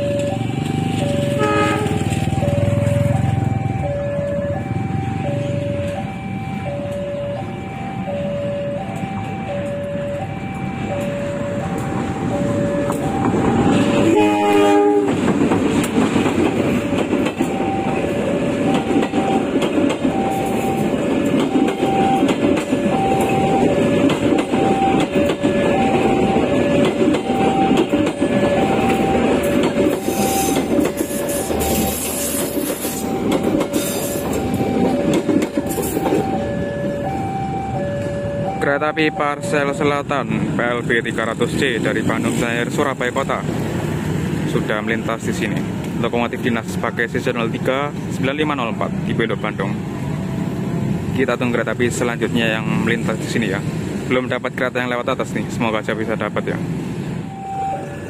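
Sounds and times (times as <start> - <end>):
two-tone crossing warning bell: 0.0 - 15.4, 16.2 - 45.8, 48.7 - 58.0
locomotive horn: 1.2 - 2.3, 13.7 - 15.2, 23.2 - 35.0
train wheels rolling and clattering: 10.8 - 14.2, 14.8 - 37.2.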